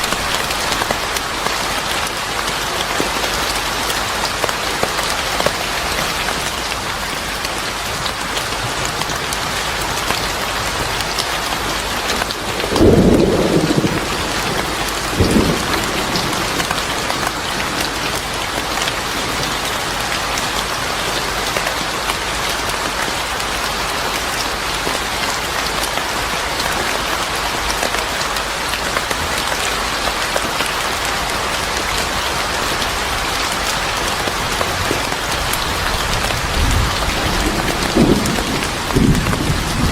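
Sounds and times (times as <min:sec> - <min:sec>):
steady rain falling: 0:00.0 - 0:39.9
thunder: 0:12.5 - 0:17.9, 0:36.2 - 0:39.9.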